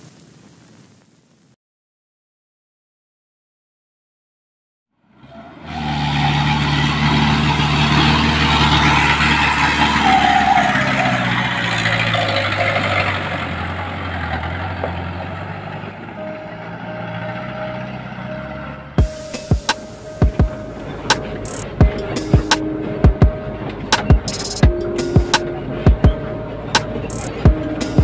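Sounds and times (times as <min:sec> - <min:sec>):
heavy truck engine droning: 0:05.0 - 0:28.0.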